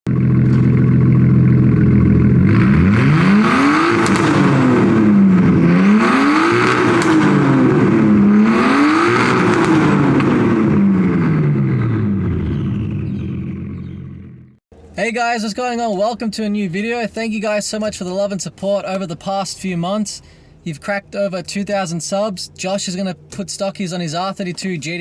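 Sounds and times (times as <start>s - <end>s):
car engine revving: 0.1s - 14.9s.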